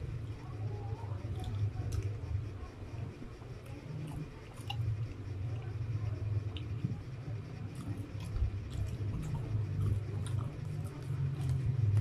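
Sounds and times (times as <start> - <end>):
steady low hum: 0.0 - 12.0
person chewing food: 1.0 - 2.3, 3.6 - 5.7, 6.3 - 12.0.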